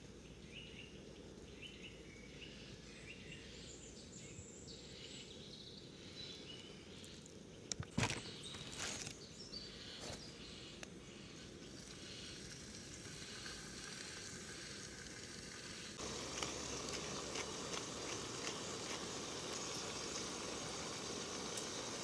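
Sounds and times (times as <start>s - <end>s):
food sizzling in a pan: 11.6s - 22.0s.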